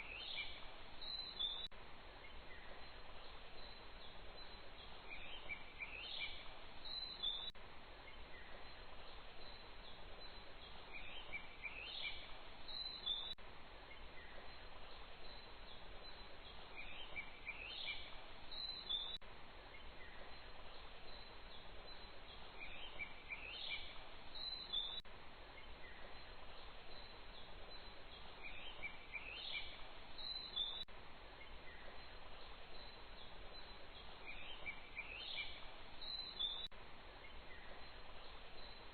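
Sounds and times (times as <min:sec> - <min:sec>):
background hiss: 0:00.0 - 0:38.9
bird chirps: 0:00.0 - 0:38.9.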